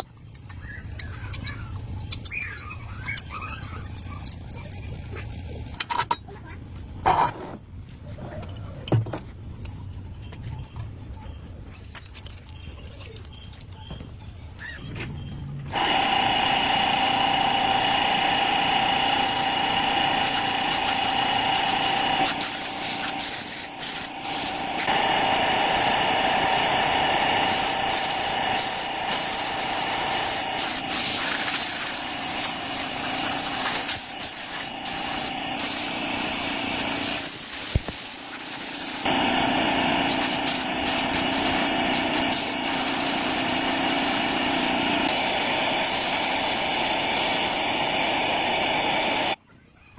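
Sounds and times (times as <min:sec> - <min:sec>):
motor running high-pitched: 0:15.7 - 0:49.4.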